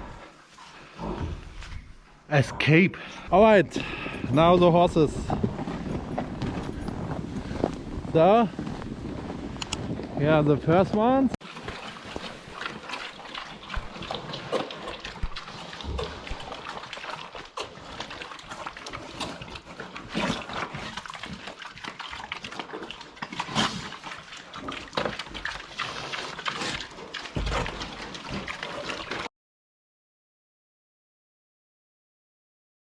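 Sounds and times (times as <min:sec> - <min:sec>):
horse noises: 0:00.0 - 0:29.3
horses crunching feed: 0:03.0 - 0:29.3.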